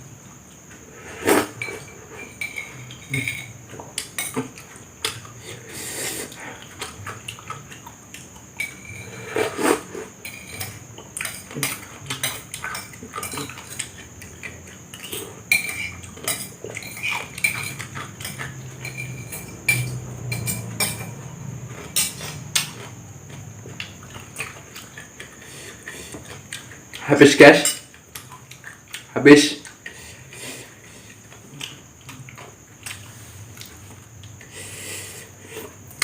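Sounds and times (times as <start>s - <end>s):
utensils clinking on a plate: 1.2s - 5.3s, 8.6s - 23.0s, 23.9s - 30.0s.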